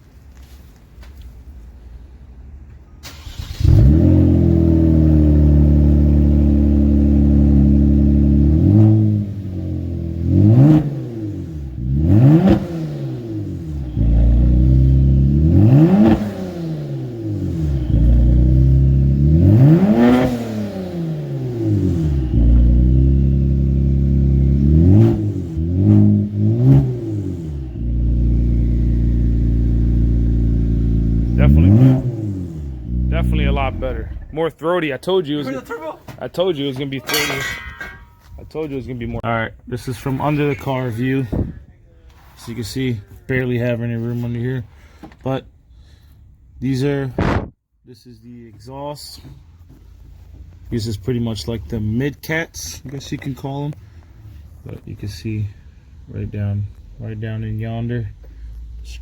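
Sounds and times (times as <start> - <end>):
car engine starting and revving: 3.0 - 34.6.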